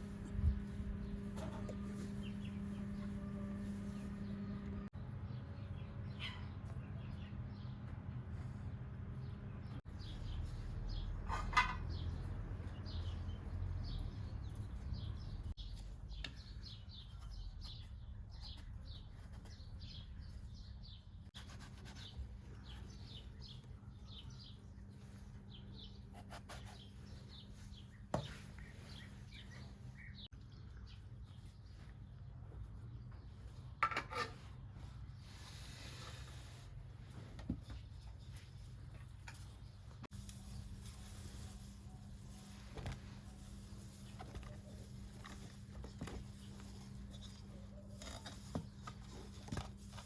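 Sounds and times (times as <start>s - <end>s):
low steady hum: 0.0s - 6.1s
small birds chirping: 0.1s - 33.8s, 34.4s - 50.0s.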